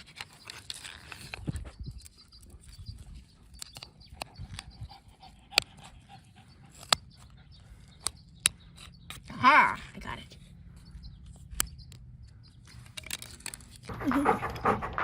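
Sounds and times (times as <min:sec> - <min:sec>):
sharp clicks: 0:03.5 - 0:04.8.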